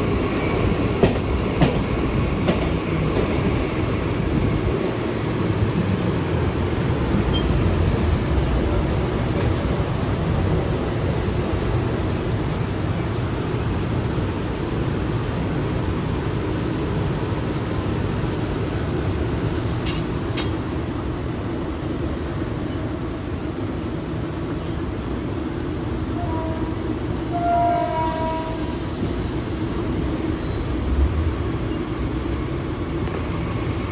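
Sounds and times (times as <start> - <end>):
train wheels rumbling on rails: 0.0 - 33.9
train horn: 26.2 - 28.7.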